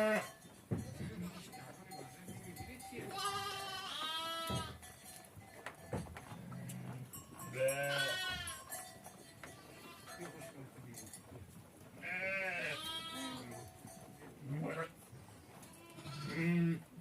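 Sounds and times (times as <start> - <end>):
sheep or goats bleating: 0.0 - 0.4, 3.0 - 4.8, 6.5 - 8.8, 9.5 - 10.2, 12.0 - 13.6, 14.4 - 15.0, 15.6 - 17.0.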